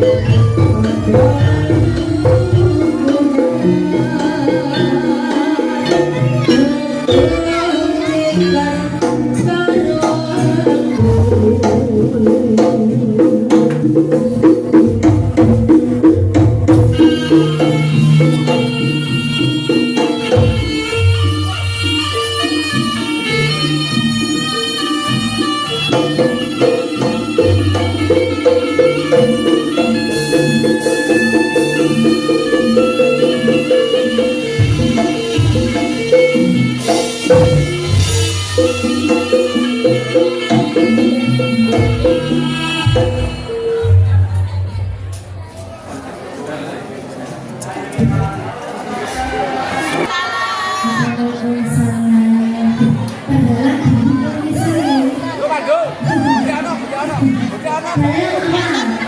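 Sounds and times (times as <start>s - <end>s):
metallophones playing: 0.0s - 44.1s
gamelan music: 0.0s - 45.3s
hand drums: 0.0s - 45.4s, 52.7s - 59.0s.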